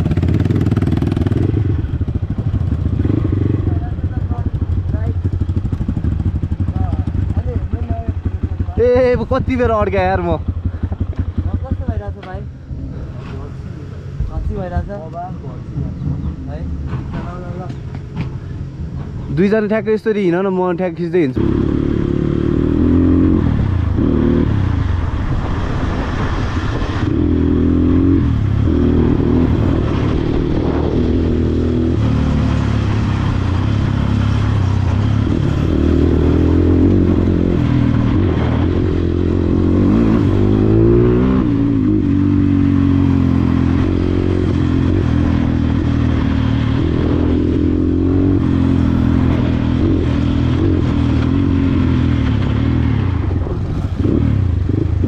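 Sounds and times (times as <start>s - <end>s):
dirt bike engine revving: 0.0s - 11.9s, 21.4s - 24.8s, 26.8s - 55.0s.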